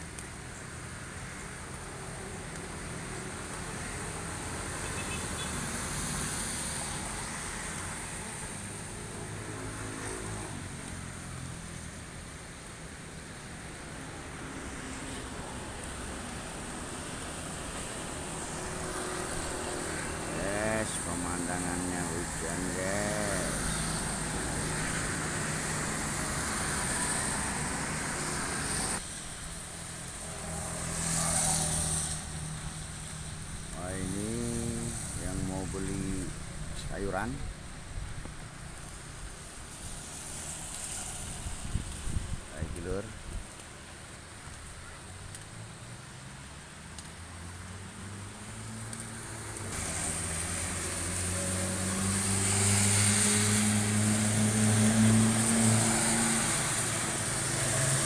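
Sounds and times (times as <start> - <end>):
rain hiss: 0.0 - 58.0
wet road noise: 0.0 - 58.0
vehicle passing on wet road: 0.1 - 58.0
hiss: 16.6 - 36.4, 38.8 - 42.2.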